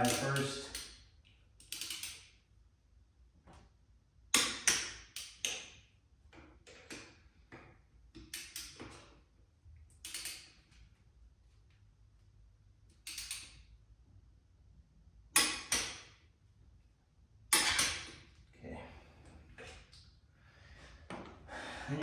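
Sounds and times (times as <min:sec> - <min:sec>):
torque wrench clicking: 0:01.6 - 0:02.4, 0:10.0 - 0:10.5, 0:12.9 - 0:13.6.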